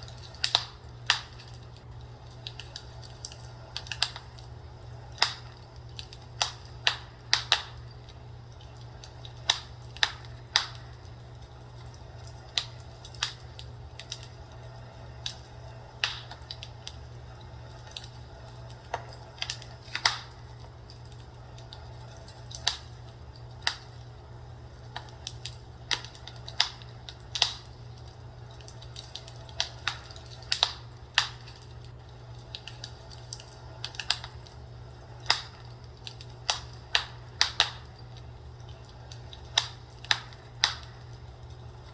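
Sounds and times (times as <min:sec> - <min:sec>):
burning wood popping and snapping: 0:00.0 - 0:41.9
steady low hum: 0:00.0 - 0:41.9.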